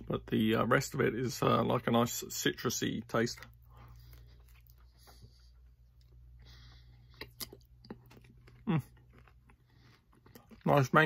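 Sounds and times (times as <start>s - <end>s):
wet chewing sounds: 3.3s - 10.9s.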